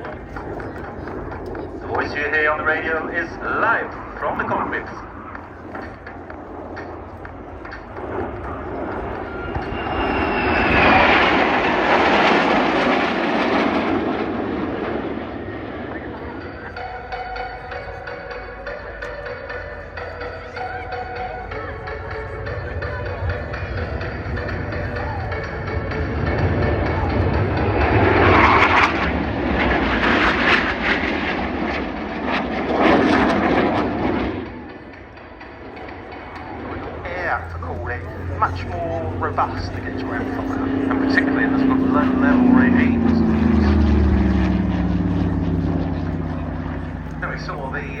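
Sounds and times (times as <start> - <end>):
aircraft engine flying past: 0.0 - 48.0
whine sliding down in pitch: 8.4 - 13.3.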